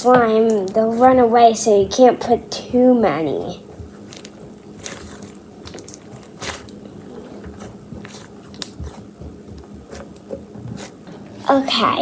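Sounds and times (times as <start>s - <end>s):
sticky clicks and crackles: 0.0s - 2.0s, 3.6s - 11.2s
hands kneading slime: 0.0s - 12.0s.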